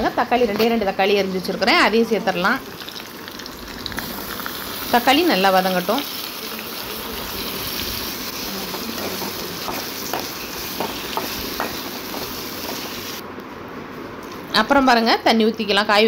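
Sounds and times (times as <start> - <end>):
tomatoes sizzling in hot oil: 0.3 - 13.2.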